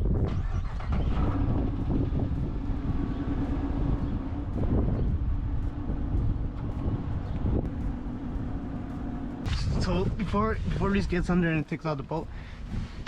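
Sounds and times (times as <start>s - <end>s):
car engine idling: 0.0s - 9.5s.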